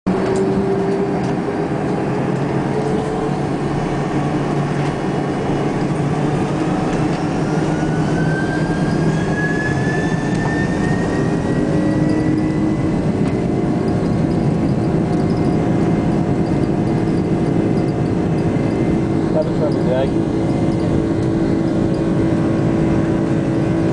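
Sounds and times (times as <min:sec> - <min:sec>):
jet engines rumbling: 0:00.1 - 0:23.9
thin engine whine rising: 0:00.1 - 0:23.9.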